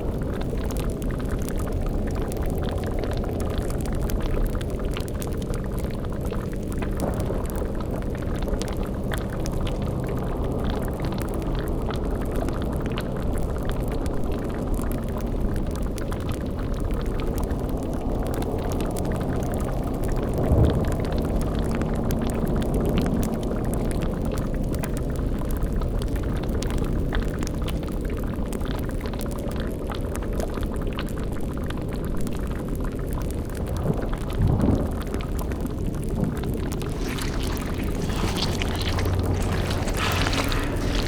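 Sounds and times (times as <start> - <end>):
cauldron bubbling: 35.4 - 41.0
fire crackling: 35.4 - 41.0.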